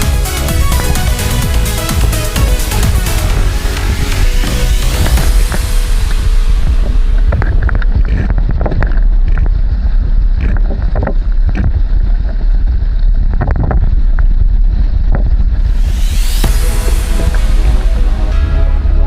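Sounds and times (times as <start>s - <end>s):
wind buffeting microphone: 0.0s - 17.8s
water slapping against hull: 1.0s - 15.5s.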